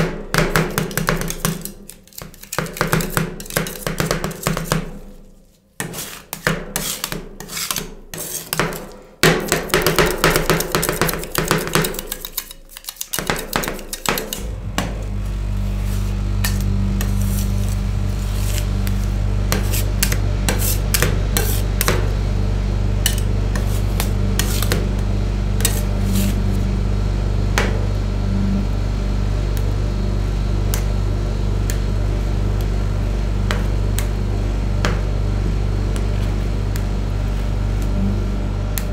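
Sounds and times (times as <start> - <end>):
metal spatulas tapping and scraping: 0.6 - 4.9, 5.8 - 14.5, 19.5 - 22.0, 23.0 - 24.8, 25.6 - 26.3
refrigeration unit humming: 6.6 - 38.9.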